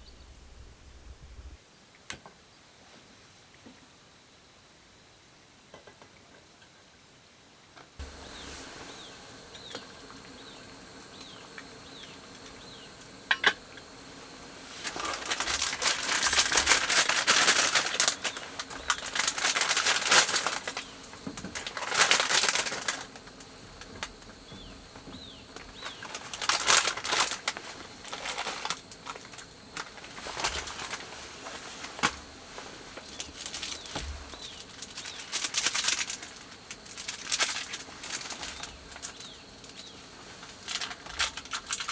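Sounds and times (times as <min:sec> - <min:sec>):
rustling crinkling noise: 0:08.0 - 0:41.9.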